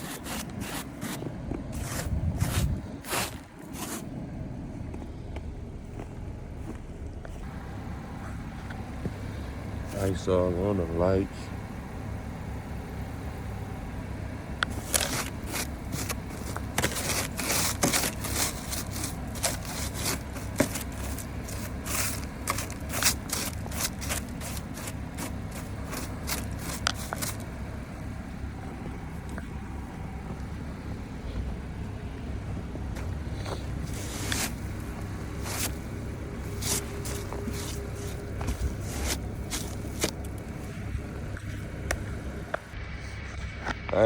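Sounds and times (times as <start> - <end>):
scraping ice off car: 0.0 - 4.3, 14.7 - 28.2, 33.0 - 41.6
car engine idling: 0.0 - 44.0.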